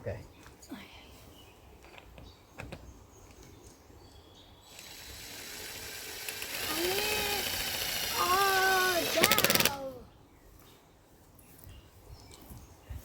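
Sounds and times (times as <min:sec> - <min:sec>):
power drill whirring: 0:04.7 - 0:09.8.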